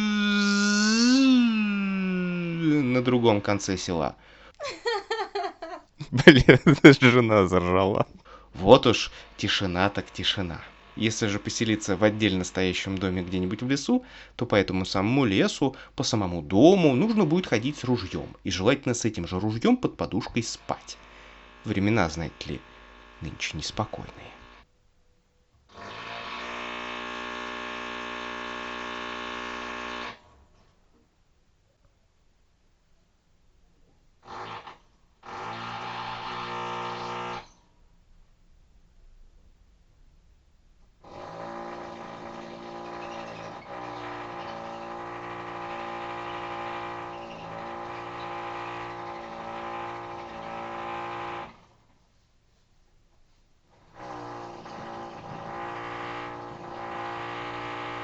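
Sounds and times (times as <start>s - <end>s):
rotary hammer motor running: 8.6s - 13.5s, 20.6s - 24.6s, 25.8s - 30.2s, 34.3s - 37.5s, 41.0s - 51.7s, 53.8s - 58.0s.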